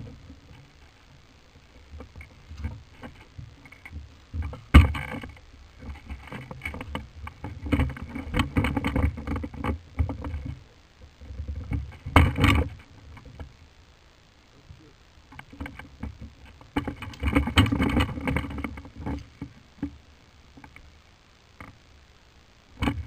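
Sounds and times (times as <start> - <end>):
thumps and rustling: 1.8 - 13.6, 15.3 - 20.0, 22.8 - 23.0.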